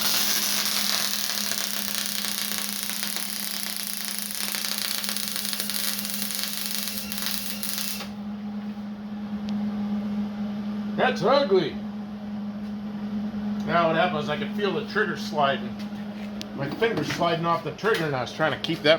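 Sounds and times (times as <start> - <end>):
welder arc crackling: 0.0 - 8.2.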